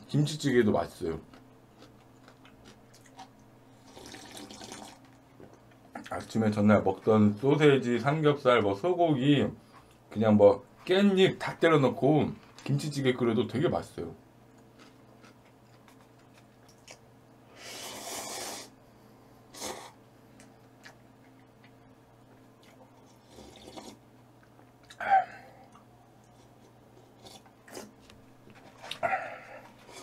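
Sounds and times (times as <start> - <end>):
low steady hum: 0.0 - 30.0
quiet chewing: 1.2 - 6.3, 14.5 - 17.1, 19.6 - 30.0.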